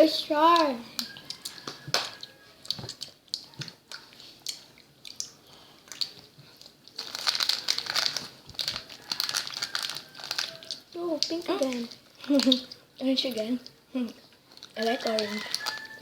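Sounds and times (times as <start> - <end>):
plastic snack packet crinkling: 6.9 - 12.8, 14.5 - 16.0.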